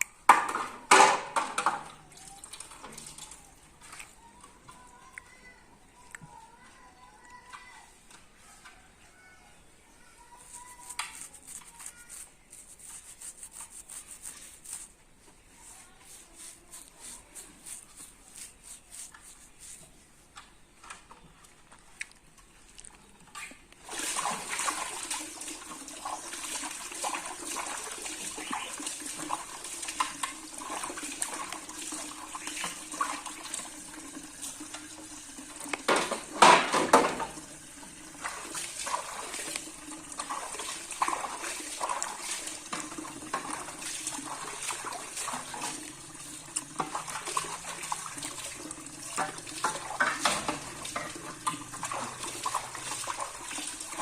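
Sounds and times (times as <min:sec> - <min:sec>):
splash and clatter: 0:23.8 - 0:33.7, 0:35.6 - 0:37.4, 0:38.1 - 0:54.0
water running from tap into sink: 0:23.8 - 0:54.0.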